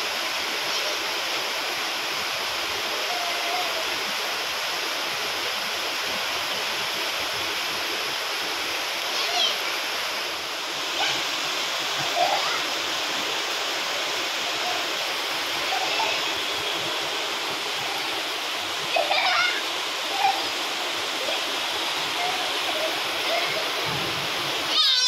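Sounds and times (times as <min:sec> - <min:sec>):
rain falling: 0:00.0 - 0:25.0
children shouting: 0:24.6 - 0:25.0.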